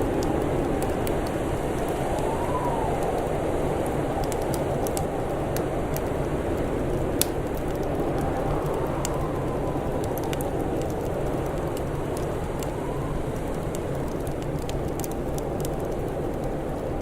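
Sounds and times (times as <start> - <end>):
low rushing noise: 0.0 - 14.9
wood fire crackling and popping: 0.0 - 17.0.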